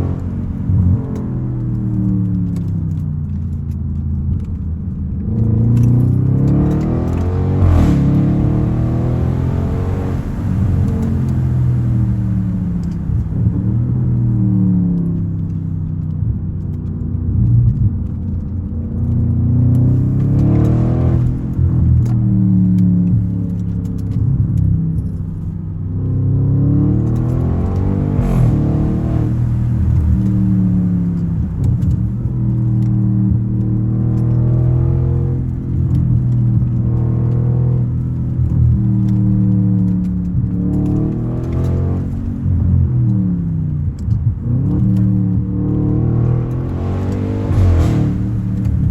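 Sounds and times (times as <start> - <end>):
car exhaust note revving: 45.7 - 48.9.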